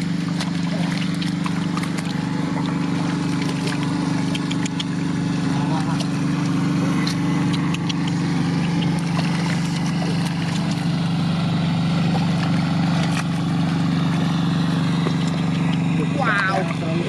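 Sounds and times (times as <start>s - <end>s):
small engine running: 0.0s - 17.0s
short clicks: 4.2s - 5.0s.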